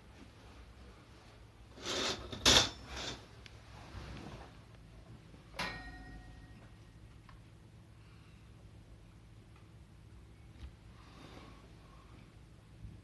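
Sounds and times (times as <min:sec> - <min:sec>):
ringing knock: 0:05.6 - 0:06.6.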